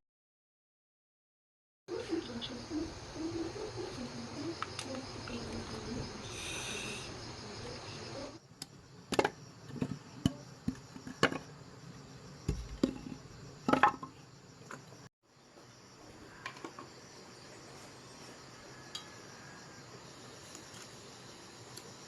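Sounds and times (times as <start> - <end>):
crickets chirping: 1.9 - 22.0.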